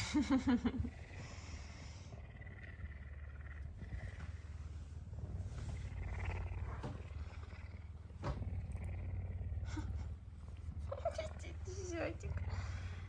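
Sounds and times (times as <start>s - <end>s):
puma purring: 0.0s - 13.0s.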